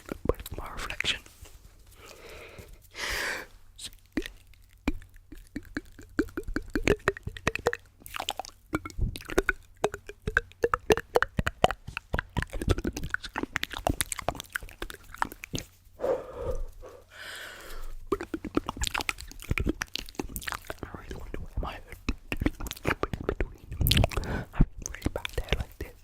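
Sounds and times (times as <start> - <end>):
wet mouth clicks and pops: 3.8 - 15.9, 17.7 - 26.0
breathy sound: 16.0 - 18.0.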